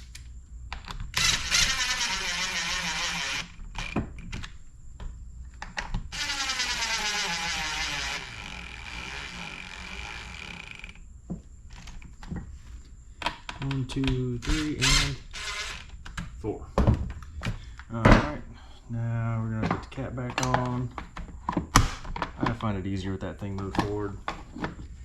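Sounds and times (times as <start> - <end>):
cordless drill driving screws: 1.1 - 4.0, 6.1 - 11.0, 14.5 - 15.9.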